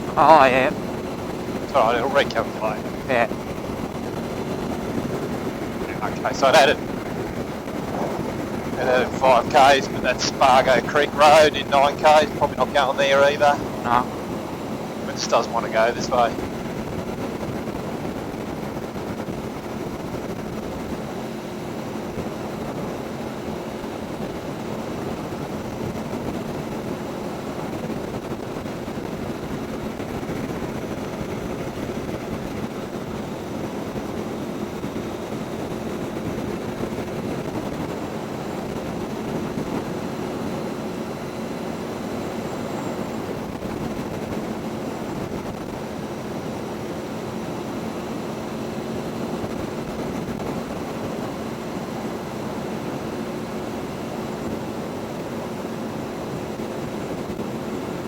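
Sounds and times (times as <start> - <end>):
wind rush: 0.0 - 21.0
motorcycle engine hum: 0.0 - 46.5
motorcycle engine cruising: 2.4 - 10.0.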